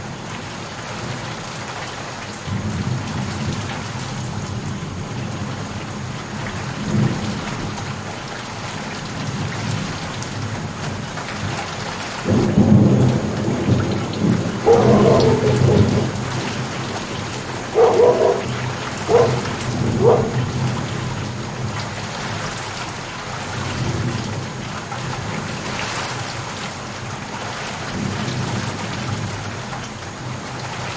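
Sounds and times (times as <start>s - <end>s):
steady rain: 0.0s - 30.9s
thunder rumbling: 12.3s - 21.6s.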